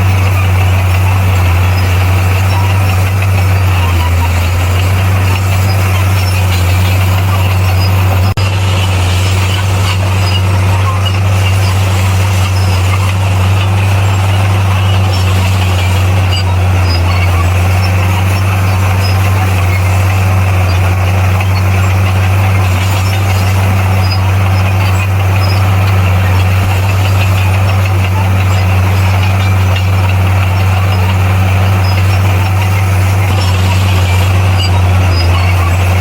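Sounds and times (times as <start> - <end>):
diesel engine running: 0.0 - 36.0.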